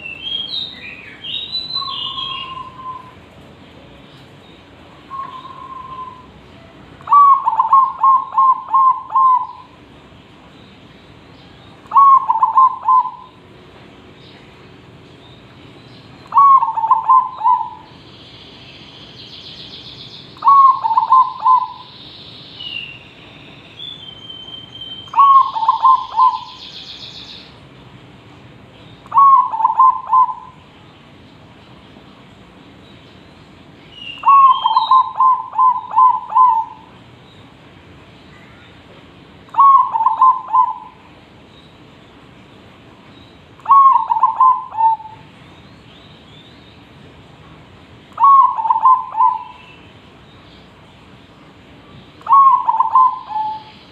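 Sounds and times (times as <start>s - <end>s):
bird chirps: 0.0s - 3.2s, 4.2s - 6.4s, 7.0s - 9.8s, 11.4s - 13.4s, 15.1s - 27.6s, 28.8s - 30.7s, 32.9s - 37.5s, 39.5s - 41.8s, 43.1s - 46.9s, 48.2s - 50.7s, 52.2s - 53.9s
dove cooing: 7.0s - 9.7s, 11.9s - 13.4s, 16.3s - 17.9s, 20.4s - 21.9s, 25.1s - 26.5s, 29.1s - 30.6s, 34.2s - 36.9s, 39.5s - 41.0s, 43.6s - 45.2s, 48.2s - 49.6s, 52.2s - 53.7s.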